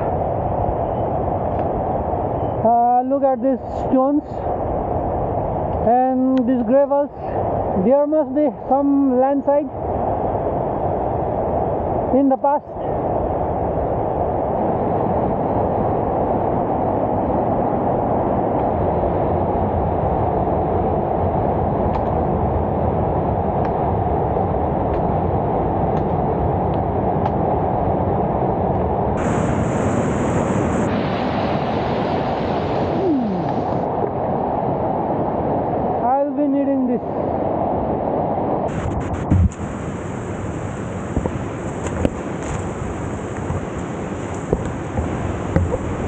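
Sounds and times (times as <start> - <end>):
low rushing roar: 12.7 - 36.1, 36.9 - 46.0
bright hiss: 29.2 - 33.7.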